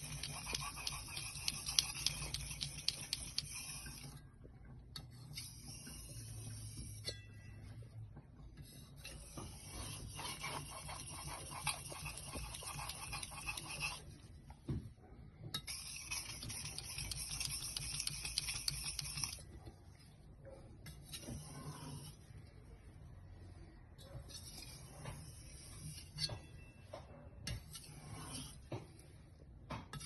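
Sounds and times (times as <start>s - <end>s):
blade scraping on whetstone: 0.0s - 4.2s, 9.0s - 14.1s, 15.7s - 19.4s, 21.0s - 22.3s, 24.3s - 26.5s, 27.5s - 29.0s.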